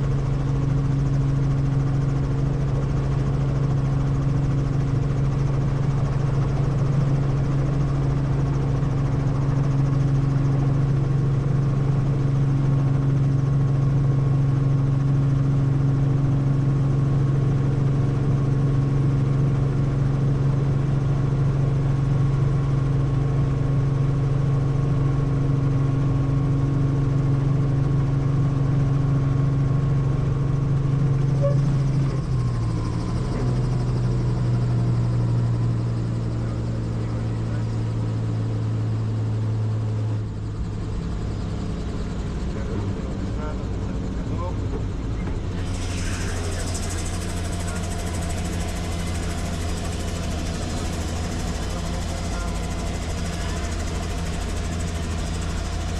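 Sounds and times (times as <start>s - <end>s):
helicopter rotor drone: 0.0s - 55.9s.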